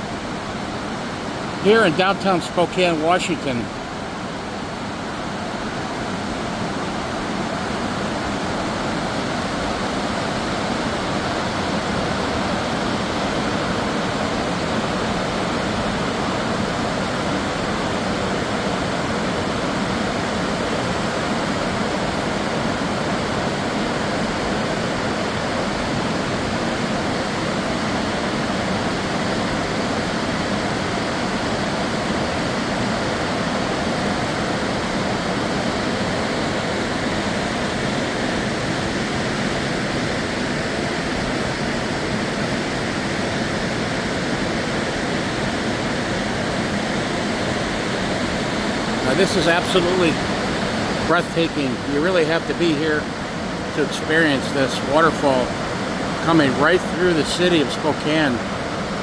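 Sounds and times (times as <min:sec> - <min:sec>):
waterfall rushing: 0:48.2 - 0:52.0.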